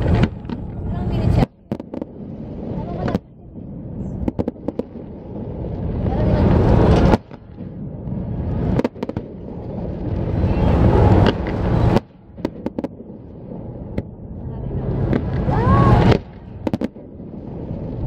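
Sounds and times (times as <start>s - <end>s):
fireworks bangs: 0.0s - 18.0s
loud rushing rumble: 0.0s - 18.0s.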